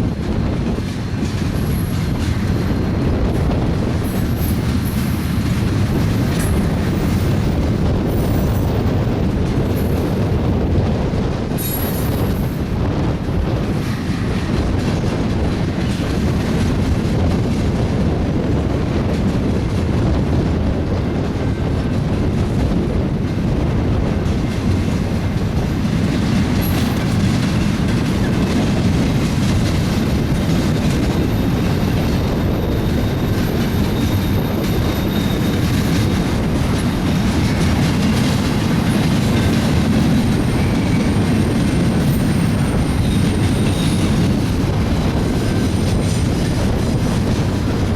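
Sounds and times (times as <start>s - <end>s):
freight train wheels clattering: 0.0s - 47.9s
high-pitched wheel squeal: 32.6s - 36.1s.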